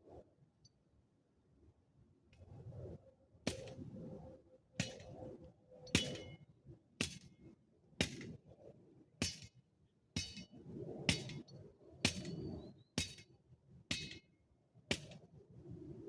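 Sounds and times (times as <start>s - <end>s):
metal hand tool striking: 10.2s - 10.5s, 13.9s - 14.2s.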